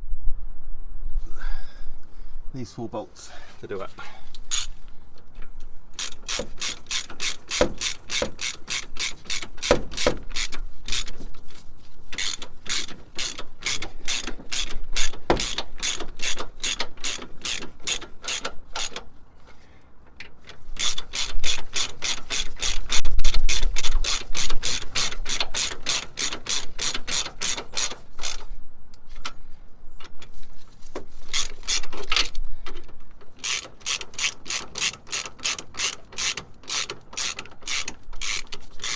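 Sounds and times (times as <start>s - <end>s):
hand ratchet clicking: 4.3s - 4.8s, 6.0s - 11.2s, 12.1s - 19.1s, 20.3s - 28.5s, 31.2s - 38.9s.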